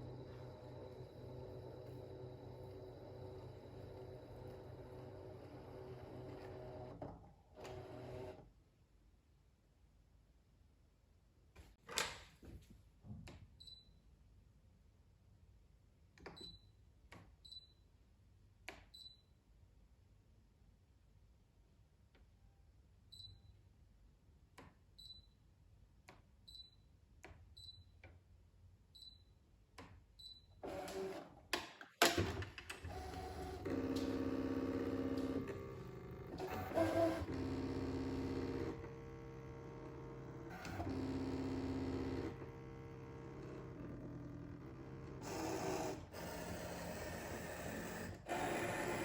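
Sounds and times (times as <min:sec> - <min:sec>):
cutting machine motors humming: 0:00.0 - 0:08.4, 0:32.8 - 0:49.0.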